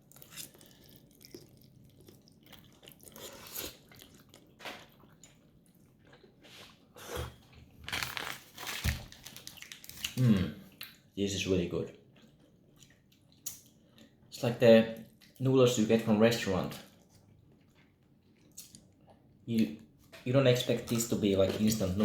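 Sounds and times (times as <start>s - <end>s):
person chewing noodles: 0.0s - 7.3s, 12.0s - 14.3s, 16.9s - 19.4s.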